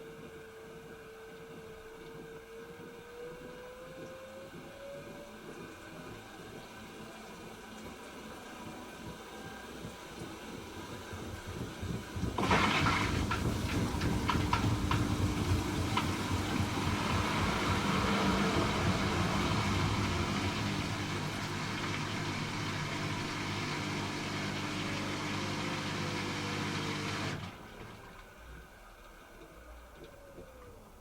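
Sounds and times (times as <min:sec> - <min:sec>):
washing machine drum humming: 0:00.1 - 0:31.0
drum clattering: 0:10.6 - 0:22.0
water hiss: 0:12.1 - 0:28.5.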